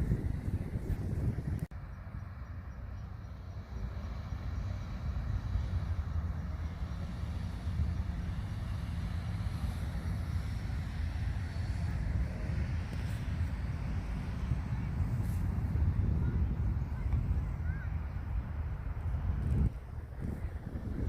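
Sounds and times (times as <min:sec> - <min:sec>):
steady low rumbling noise: 0:00.0 - 0:21.0.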